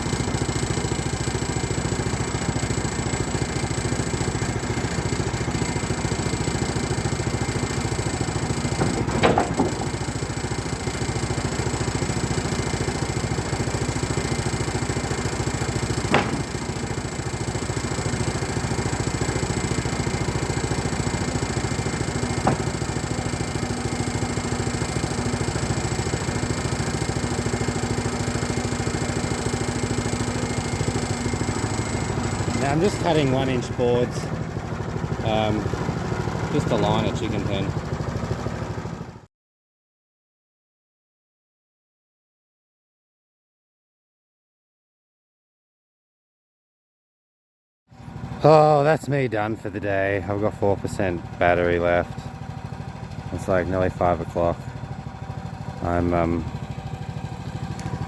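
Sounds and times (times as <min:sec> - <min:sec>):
sawmill cutting wood: 0:00.0 - 0:39.0, 0:48.2 - 0:58.0
short sharp knocks: 0:08.8 - 0:10.0, 0:16.0 - 0:16.7, 0:22.4 - 0:23.0.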